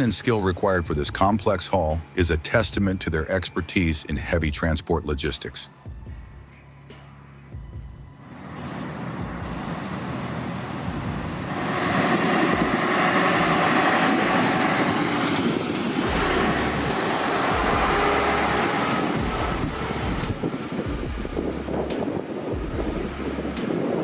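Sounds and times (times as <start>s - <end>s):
truck engine rumble: 6.4s - 24.0s
loud rushing noise: 8.2s - 24.0s.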